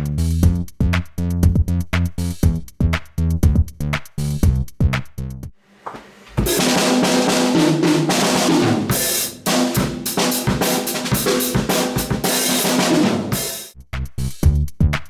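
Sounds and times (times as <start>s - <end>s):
snare and bass drum strokes: 5.7s - 13.8s
cymbals crashing: 5.8s - 13.7s.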